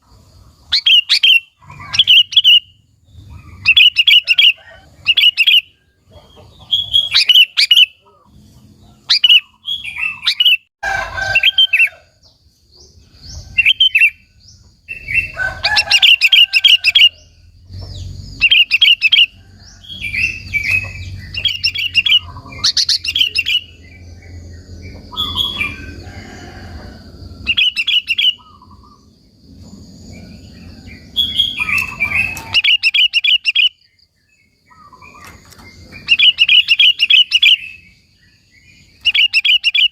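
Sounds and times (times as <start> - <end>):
bulbul chirping song: 0.0 - 10.7, 11.3 - 26.0, 27.4 - 39.9
low rumble: 17.2 - 27.6, 28.4 - 32.4.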